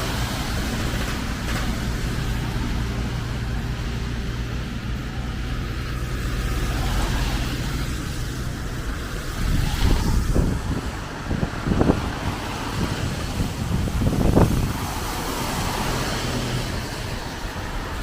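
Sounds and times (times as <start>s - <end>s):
hiss of rain: 0.0s - 18.0s
street traffic: 0.0s - 18.0s.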